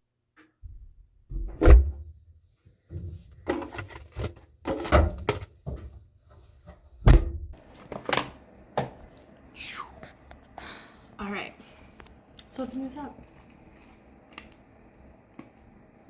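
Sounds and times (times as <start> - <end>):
objects being handled and set down: 2.9 - 6.9, 7.5 - 9.1.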